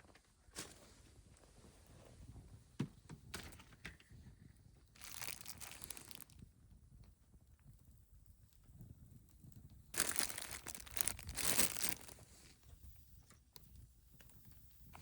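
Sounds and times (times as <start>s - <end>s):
plastic packaging crinkling: 5.0s - 6.4s, 10.0s - 12.3s.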